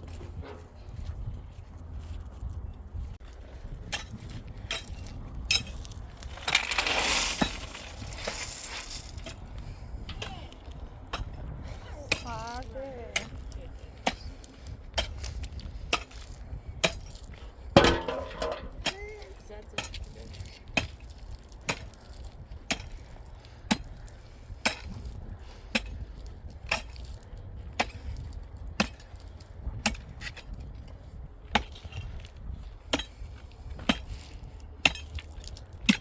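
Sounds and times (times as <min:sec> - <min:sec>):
person's voice: 0:10.1 - 0:10.6, 0:11.9 - 0:14.0, 0:18.9 - 0:20.3.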